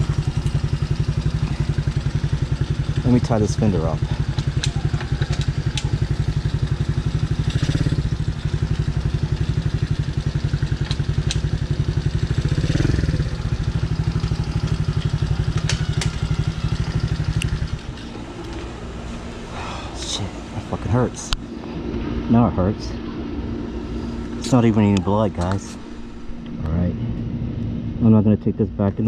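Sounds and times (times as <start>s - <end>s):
sharp clicks and rattles: 0.0s - 18.7s
dirt bike engine idling: 0.0s - 29.0s.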